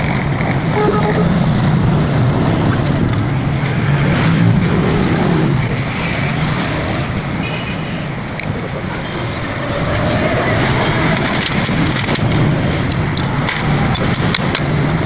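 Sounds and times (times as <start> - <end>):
motor vehicle engine: 0.0 - 7.4.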